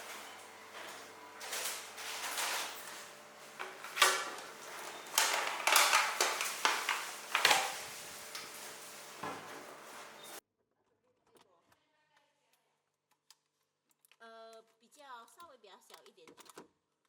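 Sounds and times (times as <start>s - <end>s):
objects knocking and scraping: 0.0s - 10.4s.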